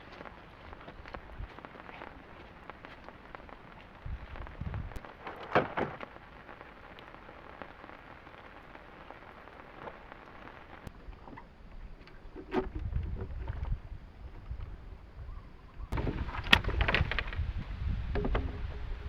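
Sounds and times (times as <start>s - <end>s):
rain falling: 0.0s - 11.7s.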